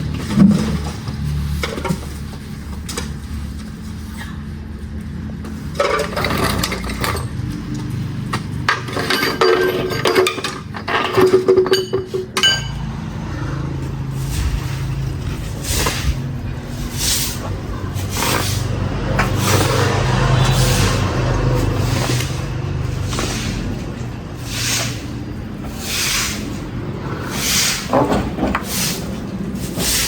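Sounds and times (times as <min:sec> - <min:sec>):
metal tools clinking and clattering: 0:05.6 - 0:12.9.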